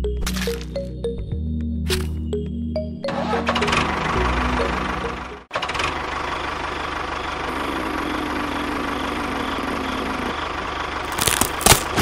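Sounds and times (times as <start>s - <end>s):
tractor engine idling: 3.2s - 12.0s.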